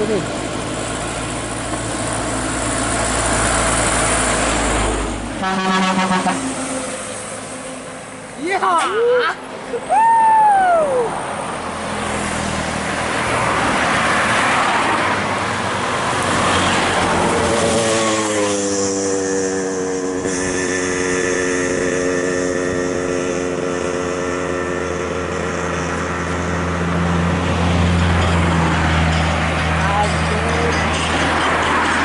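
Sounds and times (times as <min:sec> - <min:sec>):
heavy vehicle passing: 0:00.0 - 0:08.6, 0:10.6 - 0:32.0.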